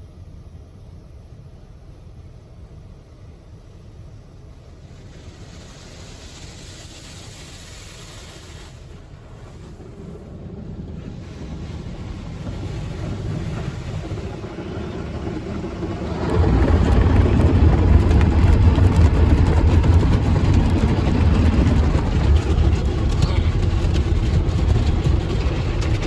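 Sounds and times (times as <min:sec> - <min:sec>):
car wash water and machinery: 0:00.0 - 0:26.0.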